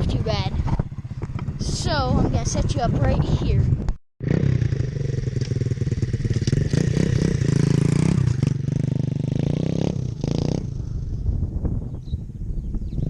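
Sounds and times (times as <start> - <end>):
dirt bike engine revving: 4.2 - 11.0.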